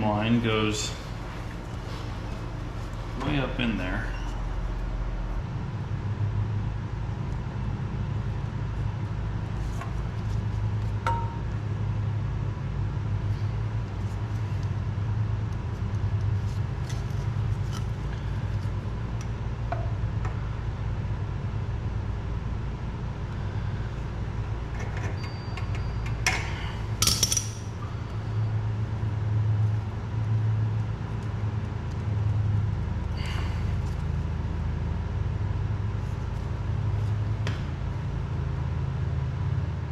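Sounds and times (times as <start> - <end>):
steady low hum: 0.0 - 39.9
metal tools clinking: 25.2 - 27.8.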